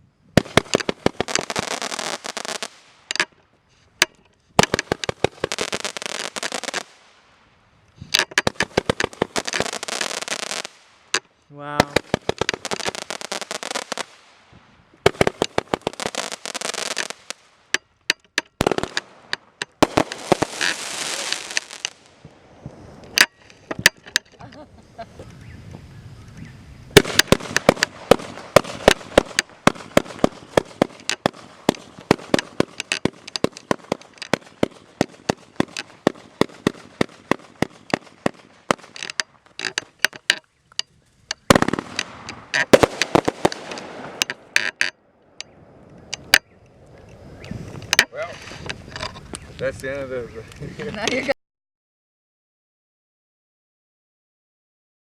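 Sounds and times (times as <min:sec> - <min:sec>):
fireworks hissing and crackling: 0:00.0 - 0:17.8, 0:18.6 - 0:44.9, 0:45.7 - 0:51.4
fireworks rapid sharp bangs: 0:00.4 - 0:03.1, 0:04.6 - 0:07.0, 0:08.4 - 0:17.6, 0:18.6 - 0:22.3, 0:27.0 - 0:40.1, 0:41.5 - 0:44.6.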